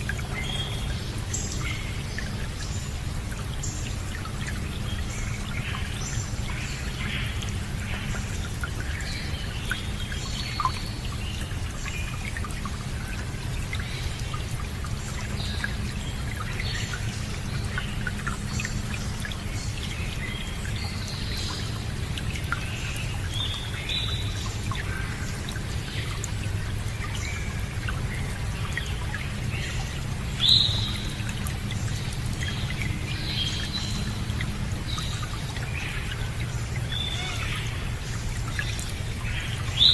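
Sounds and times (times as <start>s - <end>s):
running water rushing: 0.0s - 39.9s
birds chirping: 31.8s - 39.9s.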